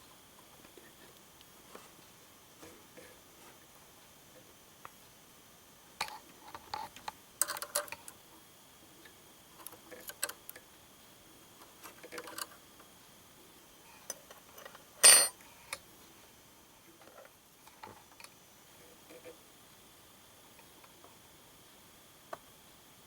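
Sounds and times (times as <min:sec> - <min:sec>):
small metallic clicks and taps: 0:06.0 - 0:08.2.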